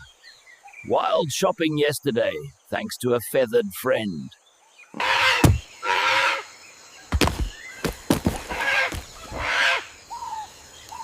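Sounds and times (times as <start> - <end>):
sharp thumps: 5.4 - 5.7, 7.1 - 9.0.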